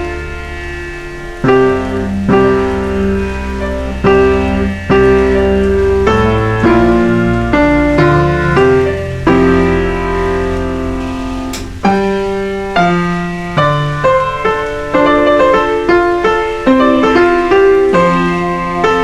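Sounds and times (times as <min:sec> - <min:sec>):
slow solo piano: 0:00.0 - 0:19.0.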